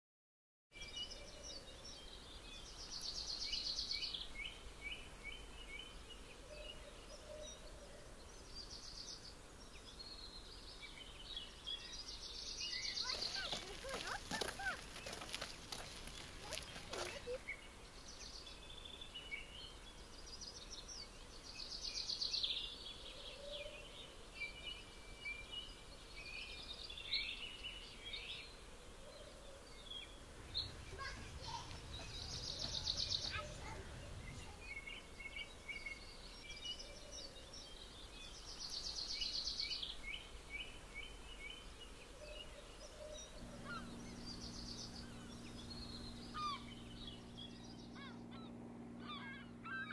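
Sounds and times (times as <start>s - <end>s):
faint outdoor background noise: 0.7s - 49.9s
small birds singing: 0.7s - 49.9s
crackling noise: 13.0s - 17.4s.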